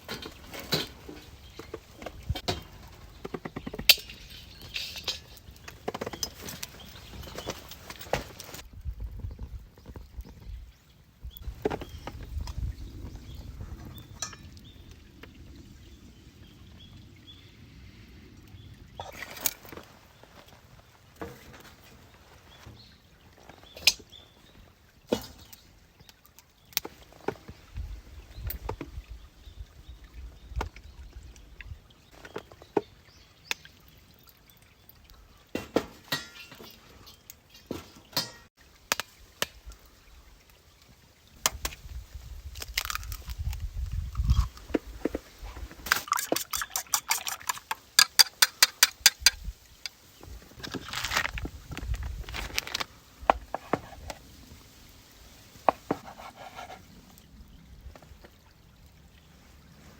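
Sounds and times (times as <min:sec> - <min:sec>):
knocks and clinks of gear: 0:42.4 - 0:54.1.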